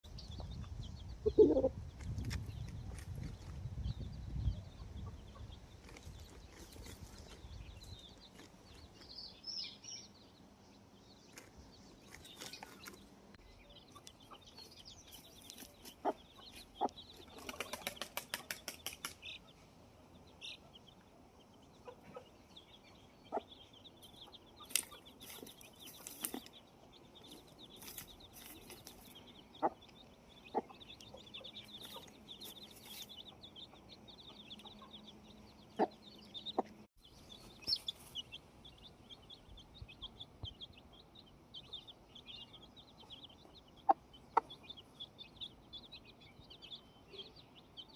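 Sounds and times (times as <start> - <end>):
chickens clucking: 0.3 - 3.6, 4.6 - 9.1, 13.6 - 19.8, 20.4 - 46.4
high bird chirps: 21.8 - 47.9.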